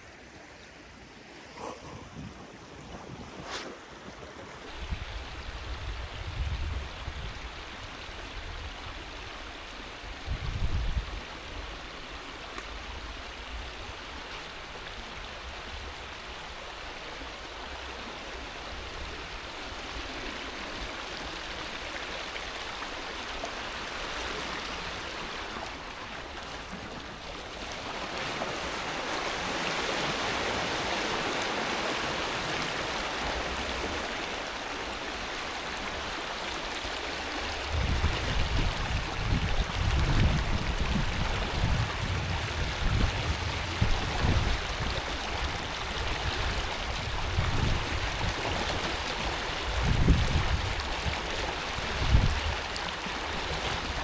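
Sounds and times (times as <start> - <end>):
water rushing through dam: 11.2 - 54.0.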